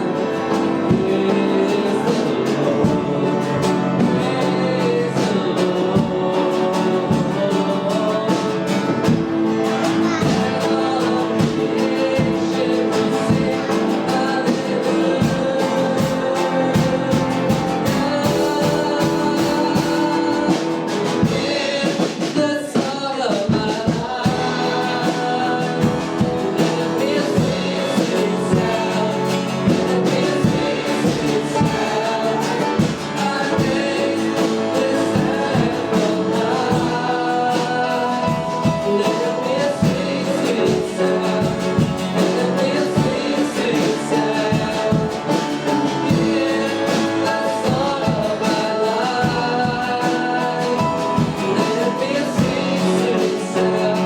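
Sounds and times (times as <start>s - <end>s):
worship music with voices singing: 0.0s - 54.0s.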